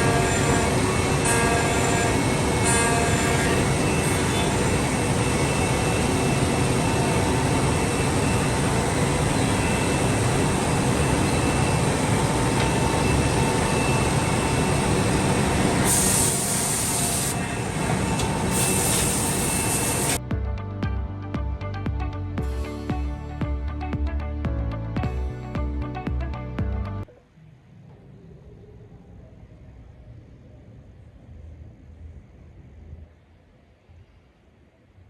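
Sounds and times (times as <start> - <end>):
faint steady machine whine: 0.0 - 20.2, 27.0 - 35.0
woodworking machine cutting: 0.0 - 20.2.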